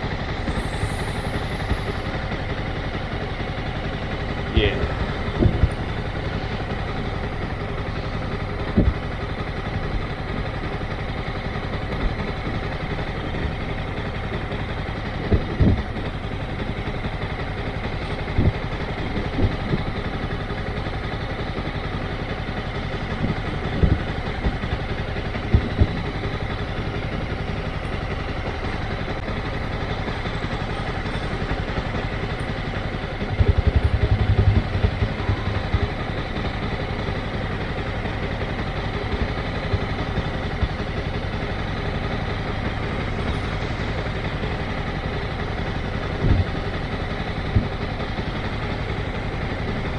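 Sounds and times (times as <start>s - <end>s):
motorcycle engine idling: 0.0s - 49.9s.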